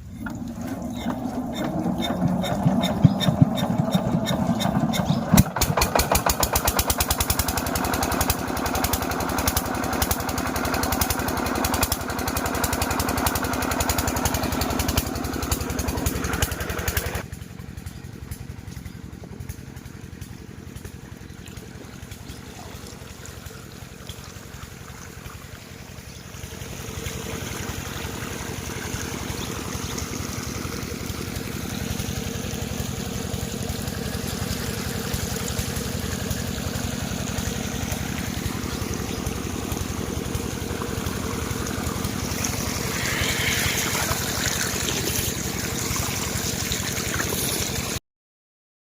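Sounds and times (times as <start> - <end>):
water rushing: 0.0 - 5.4, 22.1 - 48.0
diesel pump engine running: 0.0 - 48.0.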